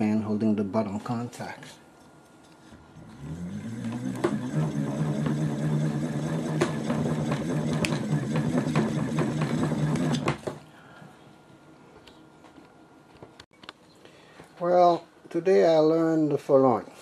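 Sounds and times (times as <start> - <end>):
alternator whirring: 2.7 - 11.2.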